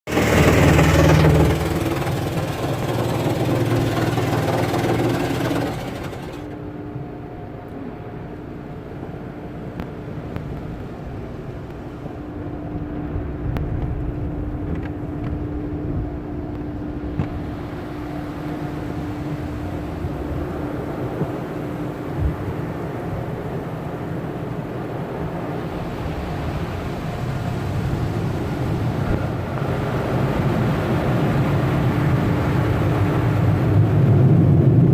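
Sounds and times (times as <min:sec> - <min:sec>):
loud rushing noise: 0:00.0 - 0:06.6
car engine humming: 0:00.0 - 0:12.5.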